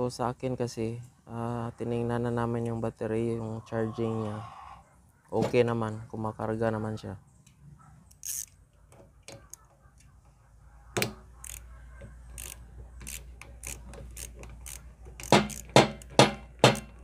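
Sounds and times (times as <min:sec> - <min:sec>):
metal tools clicking: 0:08.1 - 0:08.6, 0:12.3 - 0:17.0
sharp knocks: 0:15.2 - 0:16.9.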